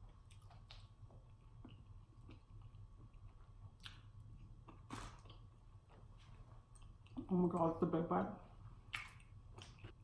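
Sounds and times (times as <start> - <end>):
quiet chewing: 0.0 - 7.3.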